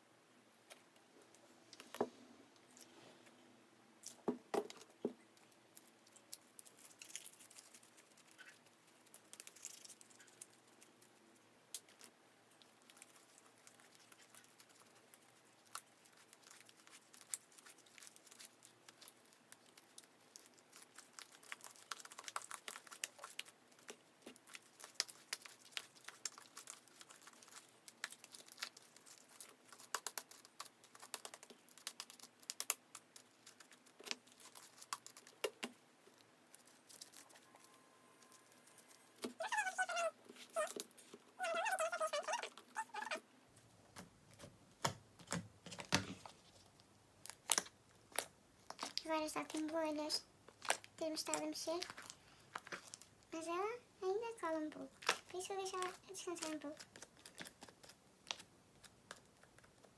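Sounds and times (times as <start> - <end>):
sticky slime clicks and crackles: 15.7 - 35.8.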